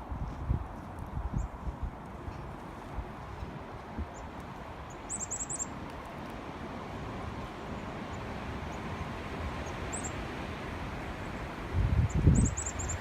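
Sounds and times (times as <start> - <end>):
songbird chirping: 4.1 - 5.8.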